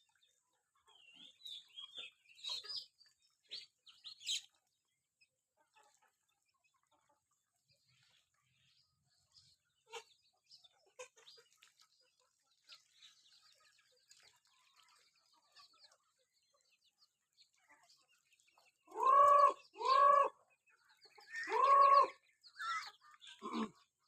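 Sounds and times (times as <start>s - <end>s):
chickens chirping: 0.1s - 24.0s
chickens squawking clucks: 18.9s - 20.4s, 21.1s - 23.8s.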